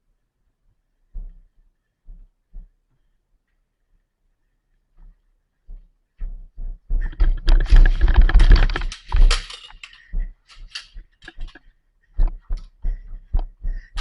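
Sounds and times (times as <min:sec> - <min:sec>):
sharp clicks and knocks: 0:07.0 - 0:12.7.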